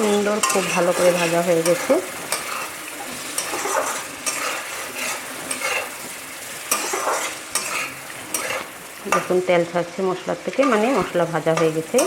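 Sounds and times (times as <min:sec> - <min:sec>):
spatula scraping a pan: 0:00.0 - 0:09.4
oil sizzling: 0:00.0 - 0:12.0.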